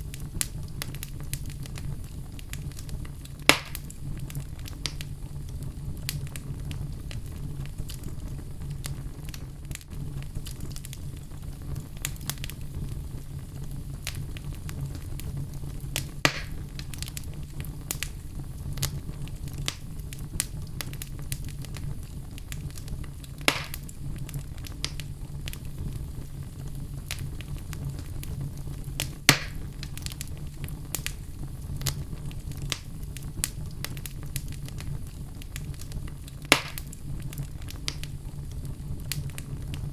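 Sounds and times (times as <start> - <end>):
wood fire crackling: 0.0 - 39.9
loud wood snaps: 3.5 - 3.9, 16.0 - 17.2, 23.5 - 23.9, 29.0 - 30.2, 36.5 - 37.0.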